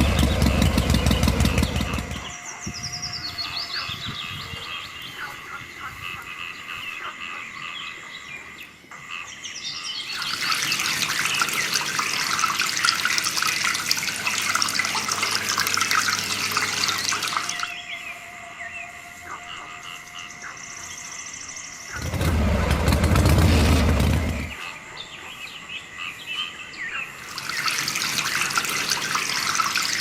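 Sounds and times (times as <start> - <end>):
birds chirping: 0.0 - 30.0
water running and splashing: 10.1 - 17.8, 22.0 - 24.6, 27.2 - 30.0.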